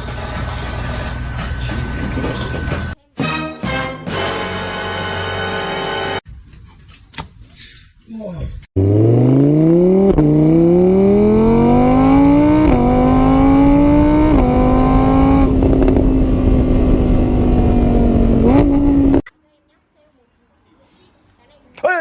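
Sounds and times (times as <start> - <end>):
engine accelerating through gears: 8.8 - 19.3.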